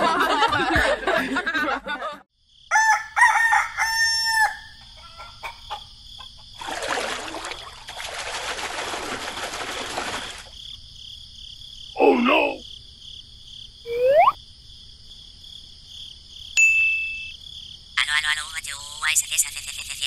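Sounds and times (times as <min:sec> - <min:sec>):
rooster crowing: 0:02.7 - 0:05.8
high-pitched chirring: 0:13.9 - 0:14.4.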